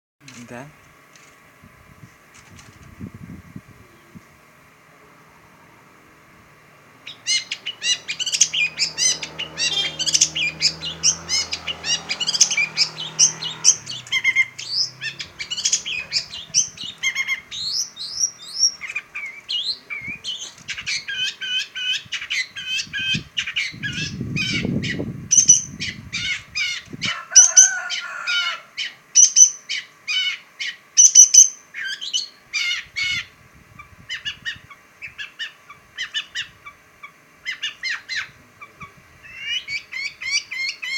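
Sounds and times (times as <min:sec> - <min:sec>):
bird singing chattering song: 0:07.0 - 0:27.7, 0:28.8 - 0:40.9.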